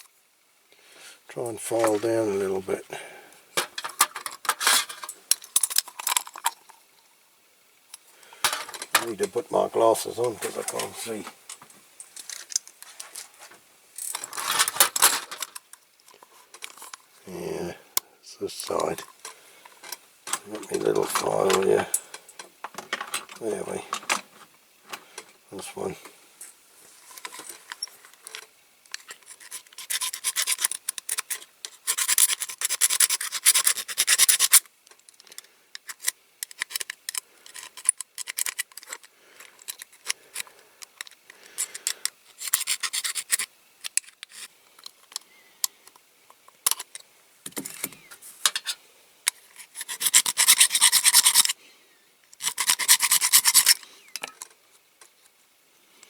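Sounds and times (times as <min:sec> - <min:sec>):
file rasping on metal: 0:29.4 - 0:30.8, 0:31.8 - 0:34.6, 0:49.7 - 0:51.5, 0:52.4 - 0:53.8.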